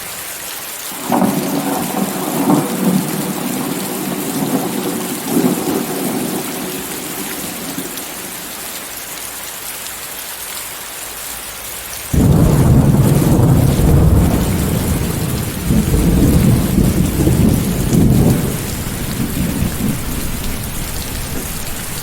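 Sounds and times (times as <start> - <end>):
heavy rain: 0.0 - 22.0
thunder rumbling: 1.0 - 8.5, 12.1 - 22.0.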